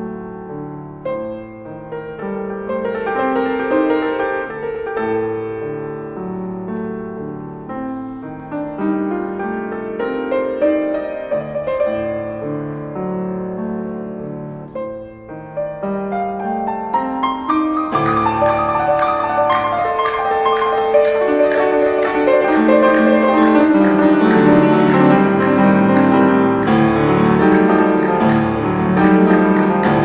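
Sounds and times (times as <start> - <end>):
solo piano piece: 0.0 - 30.0
hand percussion steady beat: 18.0 - 30.0.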